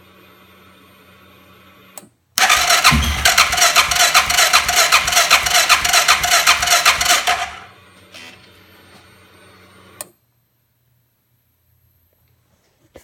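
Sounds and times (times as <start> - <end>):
electric starter cranking engine: 2.4 - 8.4.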